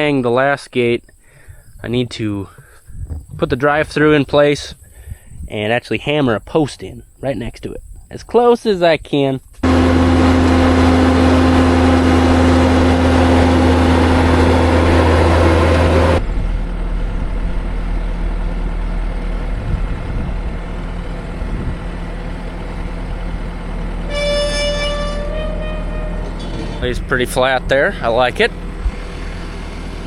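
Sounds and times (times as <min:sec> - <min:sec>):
farm machinery engine running: 0:09.6 - 0:30.0
brief higher tone: 0:24.0 - 0:27.3.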